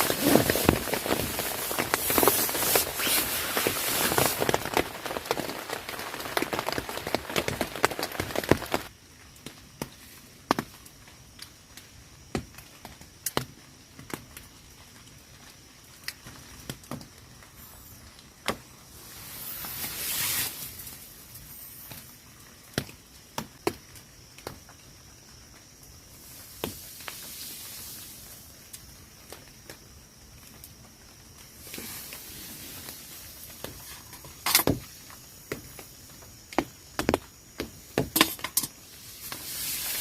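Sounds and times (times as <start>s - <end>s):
faint rain hiss: 0.0s - 40.0s.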